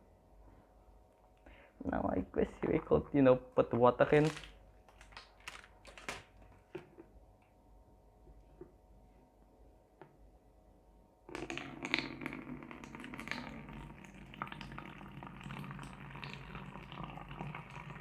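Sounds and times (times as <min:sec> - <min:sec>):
water pouring into plastic bottle: 0:02.5 - 0:06.3, 0:11.3 - 0:18.0.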